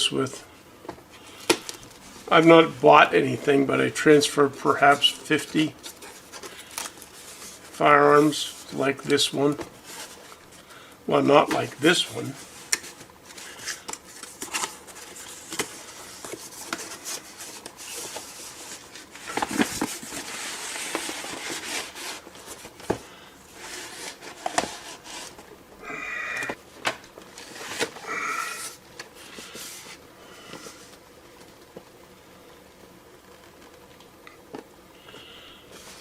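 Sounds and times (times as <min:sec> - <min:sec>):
packing rustling: 0:11.5 - 0:25.5.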